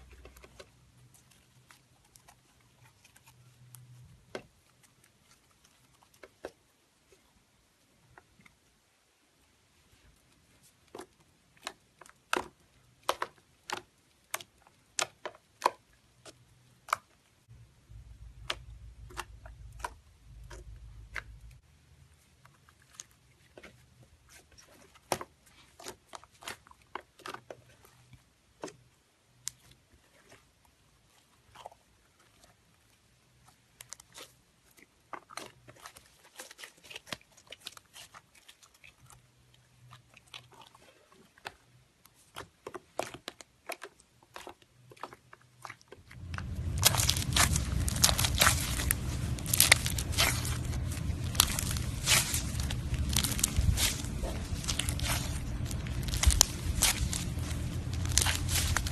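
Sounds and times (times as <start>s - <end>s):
slime squished by hand popping: 46.3s - 58.9s.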